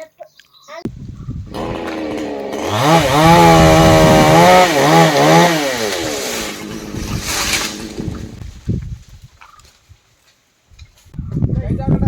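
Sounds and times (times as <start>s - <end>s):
chainsaw revving: 1.5s - 8.4s.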